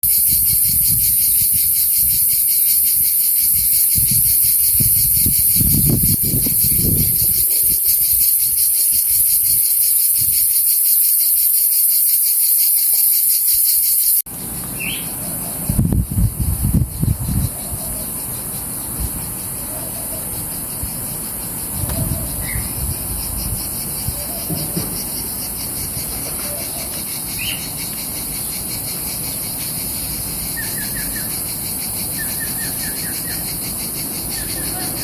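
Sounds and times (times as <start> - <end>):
crickets trilling: 0.0 - 35.0
outdoor noise: 0.0 - 35.0.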